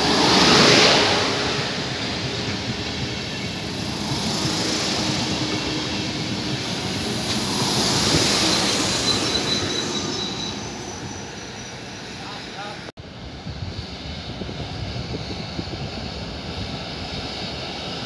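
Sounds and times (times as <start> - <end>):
train wheels rumbling on rails: 0.0 - 18.0
high steady wheel squeal: 0.4 - 12.9.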